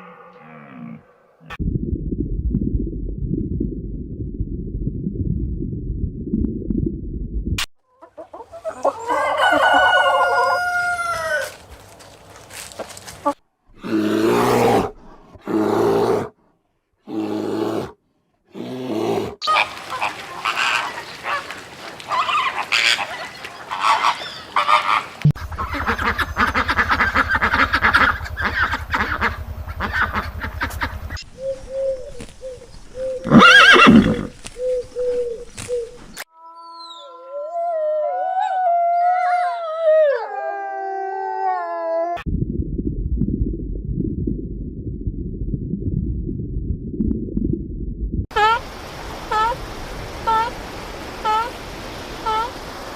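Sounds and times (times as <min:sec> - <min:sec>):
chickens clucking: 0:07.9 - 0:11.4, 0:19.4 - 0:31.2
rooster crowing: 0:08.9 - 0:11.6.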